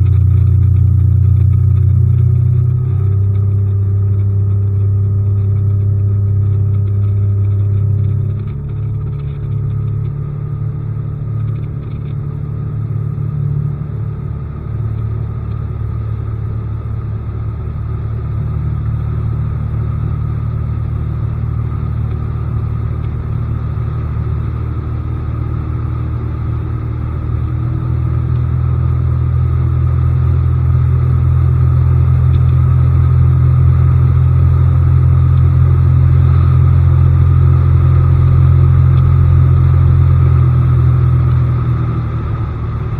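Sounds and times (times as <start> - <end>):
outboard motor running: 0.0 - 42.9.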